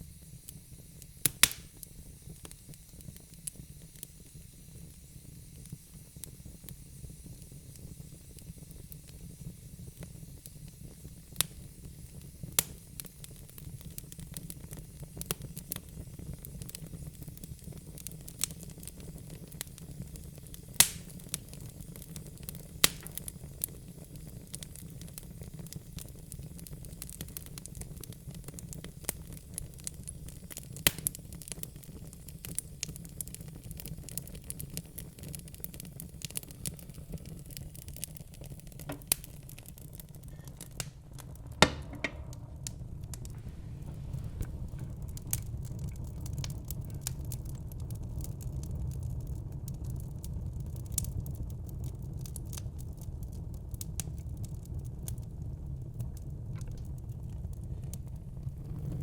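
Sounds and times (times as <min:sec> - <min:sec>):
burning logs crackling and popping: 0:00.0 - 0:59.0
fire flames rumbling: 0:00.0 - 0:59.0.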